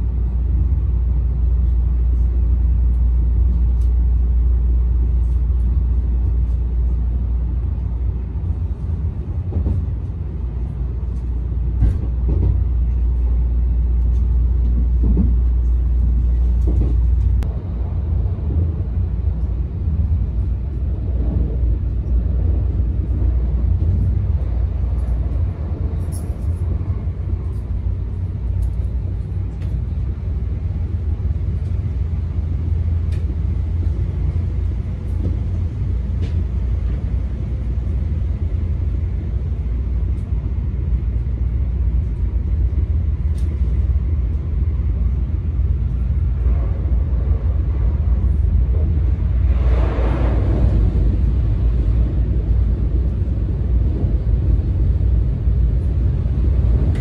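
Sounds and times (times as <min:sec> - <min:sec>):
train cabin rumble: 0:00.0 - 0:57.0.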